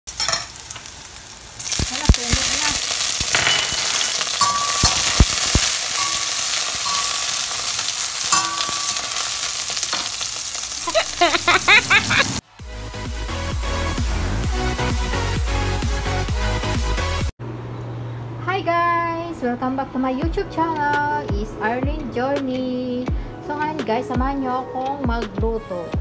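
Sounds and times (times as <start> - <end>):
food sizzling in hot oil: 0.1 - 12.4.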